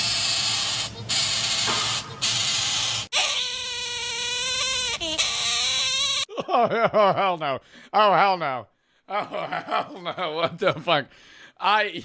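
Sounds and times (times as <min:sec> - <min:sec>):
baby bird hissing: 0:00.2 - 0:06.3.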